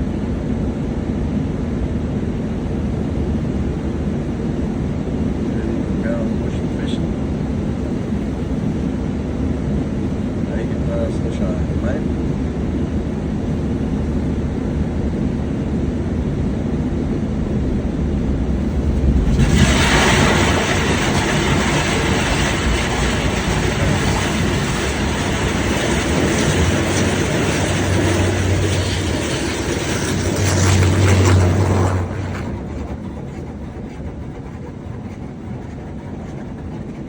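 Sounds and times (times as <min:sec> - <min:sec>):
car wash machinery rumbling: 0:09.4 - 0:37.0
loud even hiss: 0:18.6 - 0:32.6.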